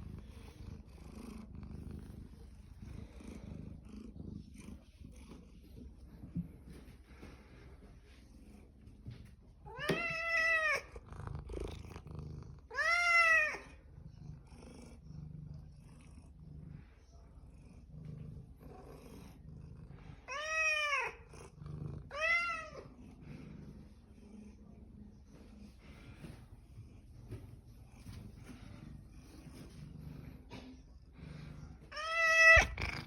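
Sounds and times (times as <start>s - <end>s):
faint low cat purr: 0.0s - 9.7s, 10.6s - 33.0s
cat meowing: 9.7s - 10.9s, 12.7s - 13.7s, 20.3s - 21.2s, 22.1s - 22.8s, 31.9s - 33.0s.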